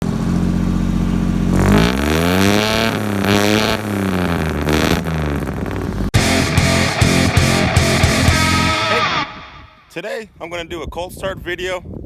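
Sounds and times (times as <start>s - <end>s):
truck engine idling and revving: 0.0s - 8.6s.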